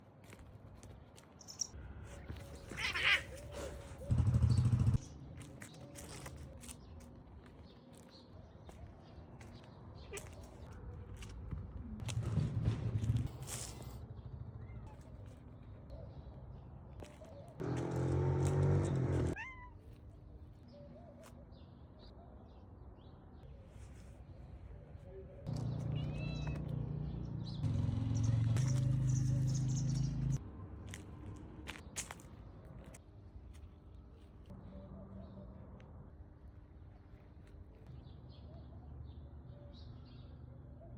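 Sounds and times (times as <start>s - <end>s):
cat meowing: 2.7s - 3.5s, 19.4s - 19.8s, 25.8s - 26.7s
cat crying: 2.7s - 3.8s, 19.4s - 19.8s, 25.8s - 26.6s.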